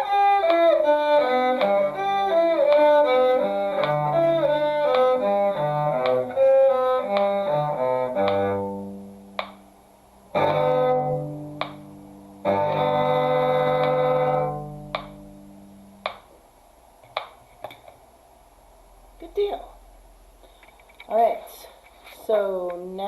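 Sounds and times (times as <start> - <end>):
violin and cello duet: 0.0 - 9.5, 10.4 - 11.8, 12.4 - 15.1
metronome clicking: 0.0 - 9.7, 10.3 - 15.3, 16.0 - 16.3.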